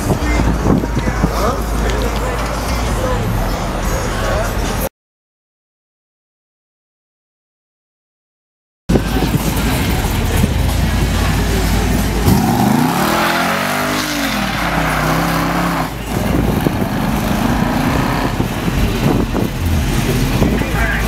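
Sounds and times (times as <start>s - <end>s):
car engines rumbling: 0.0s - 4.9s, 8.9s - 21.0s
people's voices: 0.0s - 4.9s, 8.9s - 21.0s
engine revving: 9.1s - 21.0s.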